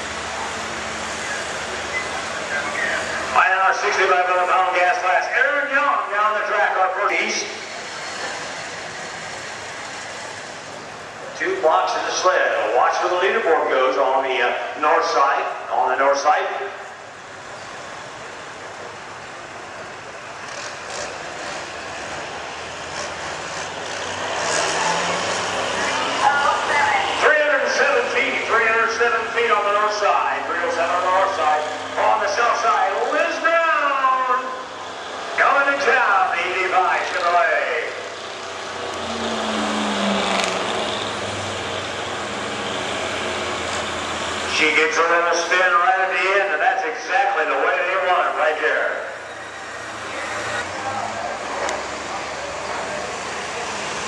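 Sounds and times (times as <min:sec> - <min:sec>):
pickup truck engine at full throttle: 0:00.0 - 0:06.3, 0:16.8 - 0:33.1, 0:34.1 - 0:46.4, 0:47.4 - 0:54.0.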